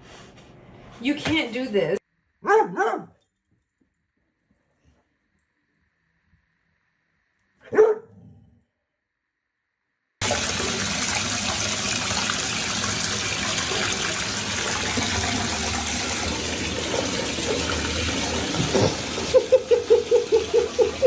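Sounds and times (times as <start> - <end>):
running water rushing: 10.2 - 21.0.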